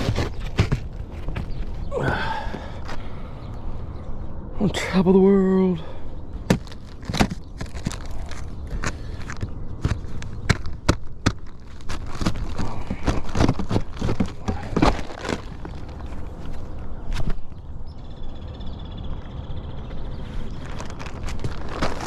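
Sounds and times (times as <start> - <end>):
footsteps on shingle roof: 0.0 - 3.1, 6.4 - 17.6, 20.0 - 22.0.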